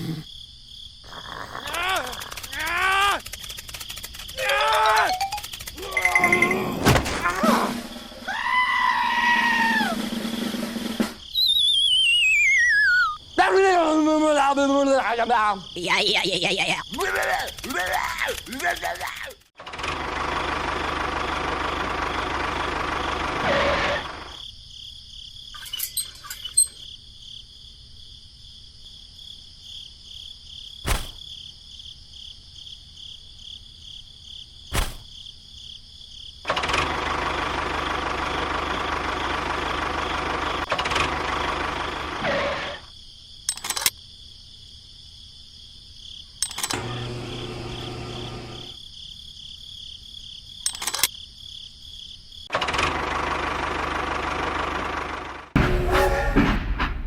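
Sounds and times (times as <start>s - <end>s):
sharp clicks: 1.6s - 5.8s, 16.9s - 19.5s, 43.5s - 44.0s, 46.4s - 47.0s, 50.6s - 51.1s
high-pitched insect drone: 1.7s - 6.7s
small motor running: 46.5s - 48.8s.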